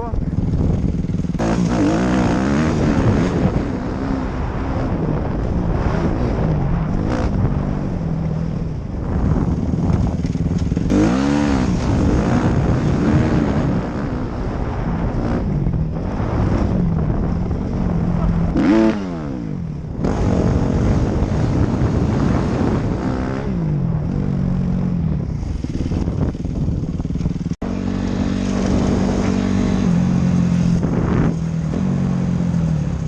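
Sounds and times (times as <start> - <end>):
dirt bike engine revving: 0.0 - 33.0
wind on microphone: 0.0 - 33.0.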